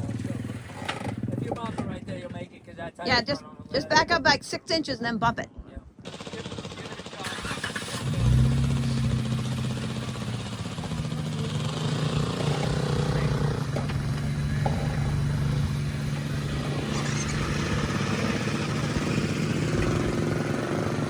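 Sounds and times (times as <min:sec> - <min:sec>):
engine running under load: 0:06.1 - 0:21.0.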